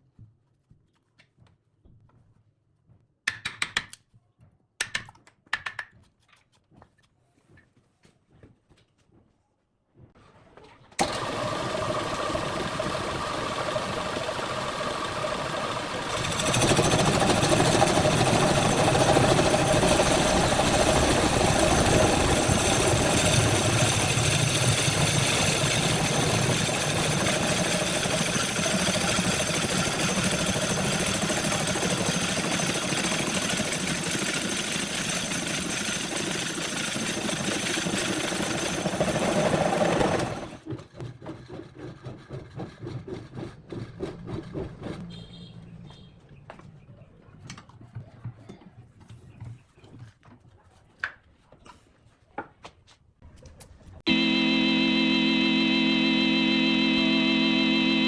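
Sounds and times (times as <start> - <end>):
wood lathe running: 11.0 - 40.6.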